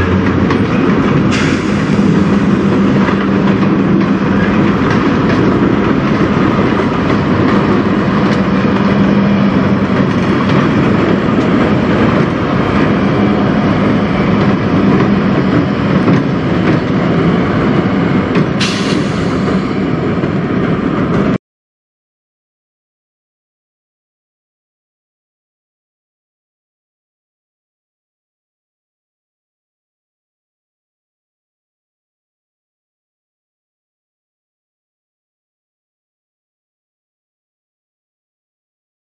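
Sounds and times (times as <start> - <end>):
diesel locomotive engine drone: 0.0 - 21.4
freight train rolling on rails: 0.0 - 21.4
brief high hiss: 18.6 - 19.6.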